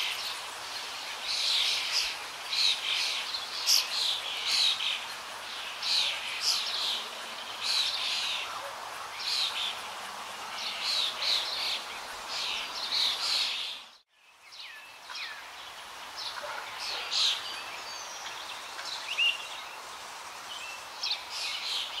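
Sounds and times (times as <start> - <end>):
birds chirping: 0.0 - 22.0
faint hiss: 0.0 - 22.0.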